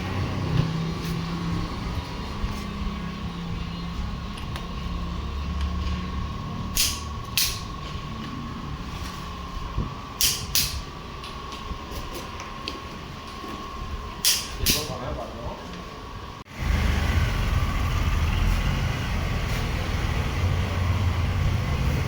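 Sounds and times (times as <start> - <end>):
tractor engine running: 0.0 - 12.0, 16.4 - 22.0.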